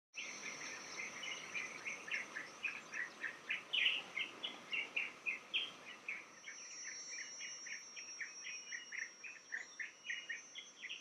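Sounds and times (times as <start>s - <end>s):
bird chirping: 0.2s - 11.0s
high-pitched insect drone: 6.4s - 11.0s.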